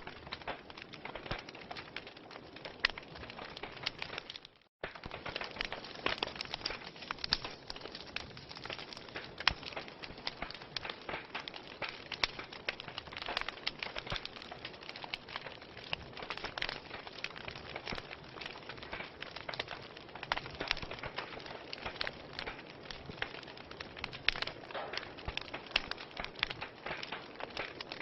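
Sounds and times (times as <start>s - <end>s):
fire crackling: 0.0s - 28.0s.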